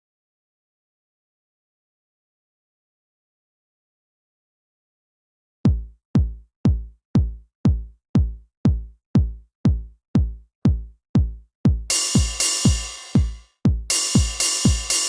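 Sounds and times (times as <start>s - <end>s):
drum machine kick drum beat: 5.7s - 15.0s.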